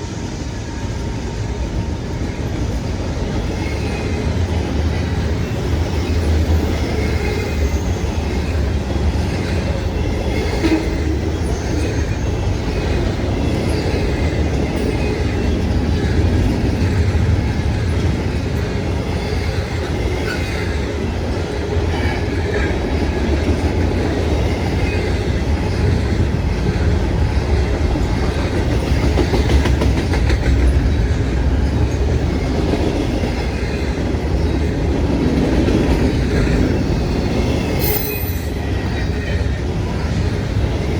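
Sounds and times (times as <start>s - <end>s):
freight train rumbling past: 0.0s - 40.9s.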